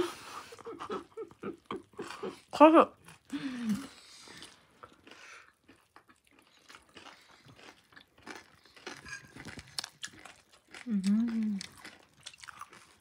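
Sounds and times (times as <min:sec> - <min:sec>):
crunchy chewing: 0:03.9 - 0:13.0.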